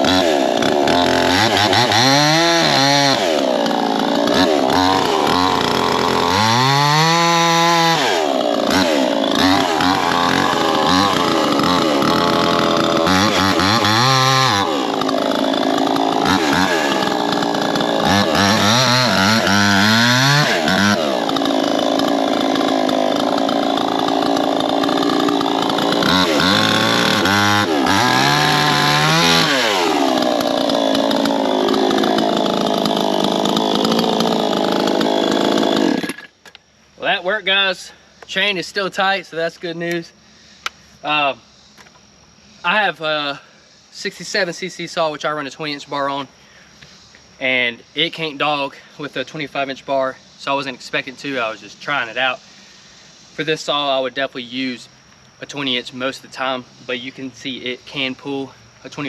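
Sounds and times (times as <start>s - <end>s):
chainsaw cutting wood: 0.0s - 36.7s.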